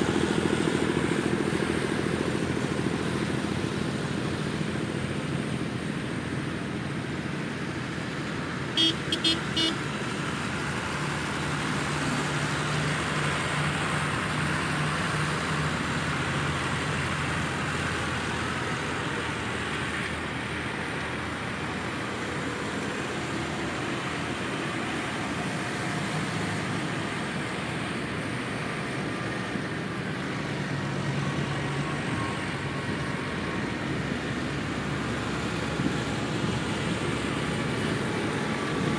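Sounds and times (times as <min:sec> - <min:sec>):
tractor and vehicle engines: 0:00.0 - 0:38.9
short horn toots: 0:08.8 - 0:09.8.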